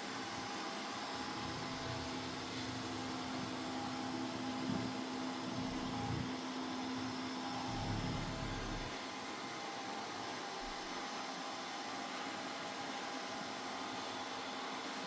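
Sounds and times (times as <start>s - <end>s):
robot vacuum motor whirring: 1.1s - 8.9s.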